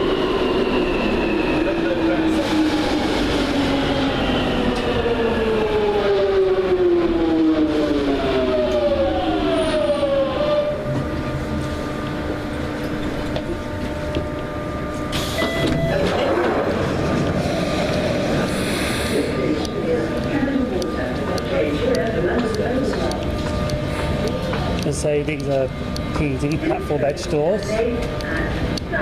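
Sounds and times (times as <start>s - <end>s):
train braking motor whine: 0.1s - 29.0s
electrical hum: 9.1s - 29.0s.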